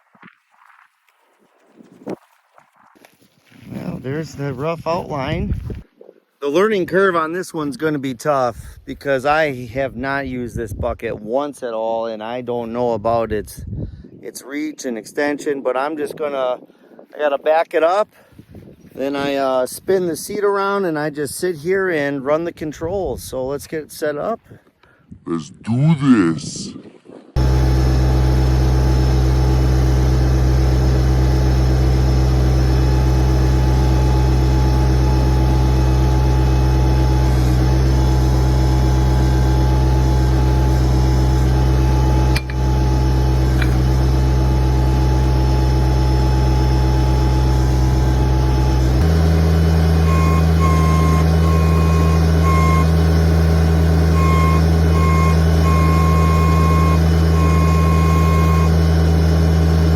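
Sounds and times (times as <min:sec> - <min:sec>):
tractor engine running: 0:27.4 - 0:59.9
high beeping: 0:50.0 - 0:52.9, 0:54.2 - 0:58.8.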